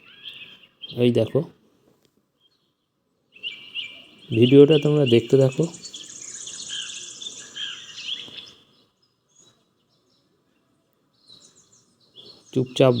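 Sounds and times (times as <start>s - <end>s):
small birds chirping: 0.0s - 13.0s
fast high bird trill: 3.4s - 8.7s.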